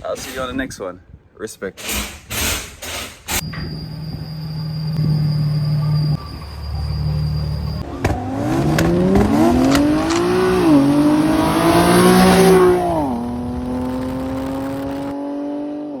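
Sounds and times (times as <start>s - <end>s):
car engine revving: 6.8s - 15.8s.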